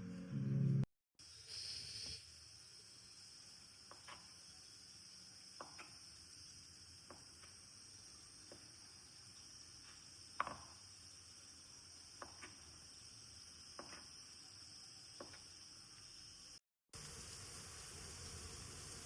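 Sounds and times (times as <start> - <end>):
low hiss: 17.0 - 19.0.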